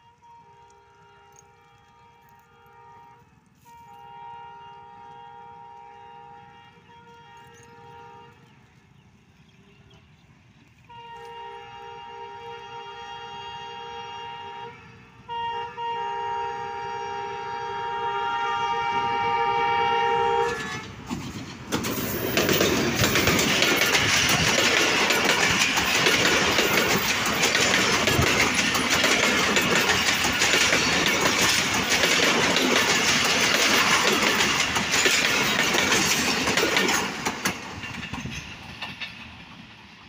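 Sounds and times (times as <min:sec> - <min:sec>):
locomotive horn blast: 0:00.0 - 0:08.7, 0:10.8 - 0:21.1
train rumbling past: 0:00.0 - 0:40.0
wheels clacking over rail joints: 0:20.3 - 0:40.0.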